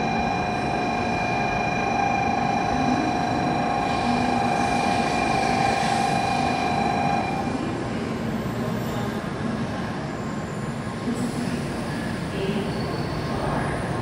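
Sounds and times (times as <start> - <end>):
train whine of held tones: 0.0 - 9.2.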